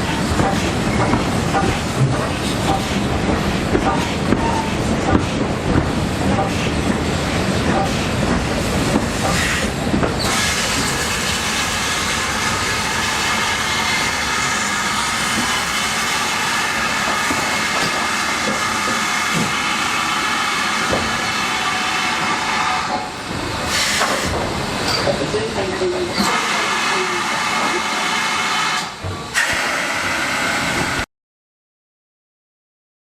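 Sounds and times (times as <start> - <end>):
steam locomotive hissing steam: 7.8 - 31.0.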